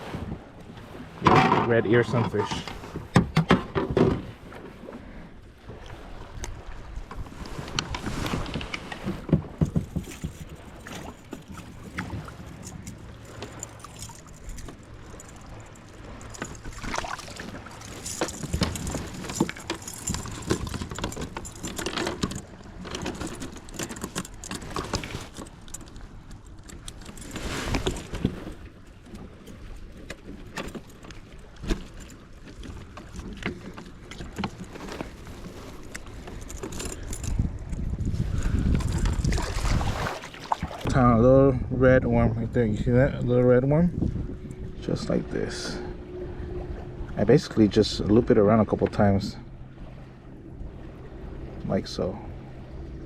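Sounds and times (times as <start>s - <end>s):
fishing gear knocking and rustling: 7.1s - 40.9s
small metal clinks: 12.4s - 17.0s, 17.7s - 28.1s, 36.3s - 37.4s.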